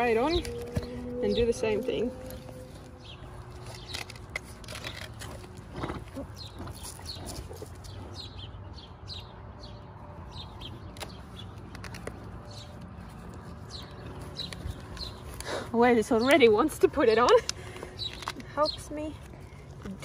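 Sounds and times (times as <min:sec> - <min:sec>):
low steady hum: 0:00.0 - 0:05.8
small birds chirping: 0:00.0 - 0:20.0.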